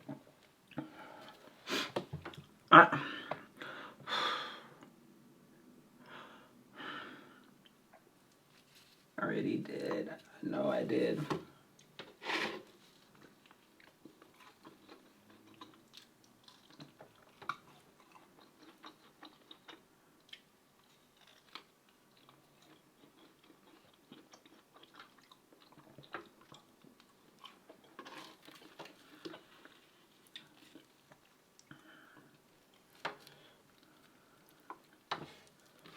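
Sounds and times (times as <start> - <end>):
person chewing food: 12.9 - 35.9.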